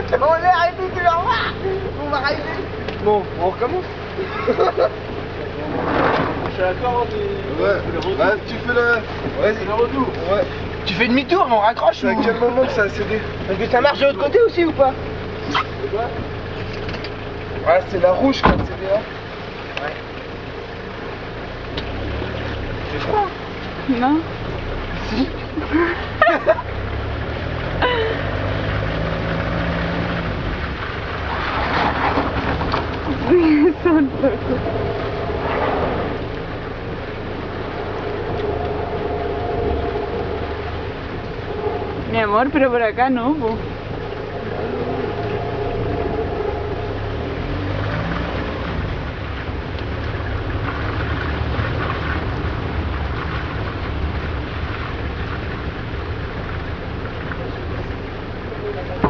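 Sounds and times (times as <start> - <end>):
continuous rushing noise: 0.0 - 59.0
vehicle engine humming: 0.0 - 59.0
rushing noise: 34.0 - 58.4.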